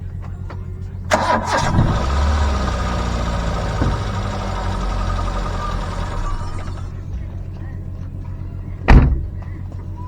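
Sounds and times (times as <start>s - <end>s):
vehicle engine running: 0.9s - 8.7s
clatter: 1.1s - 7.6s.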